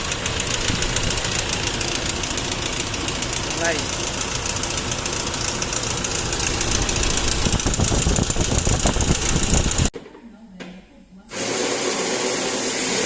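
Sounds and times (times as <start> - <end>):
diesel engine running: 0.0 - 9.9.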